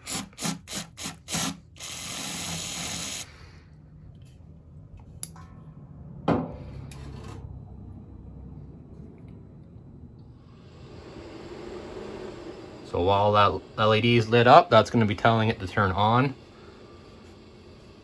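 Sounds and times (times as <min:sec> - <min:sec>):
low steady hum: 0:01.8 - 0:18.0
knock: 0:06.3 - 0:06.6.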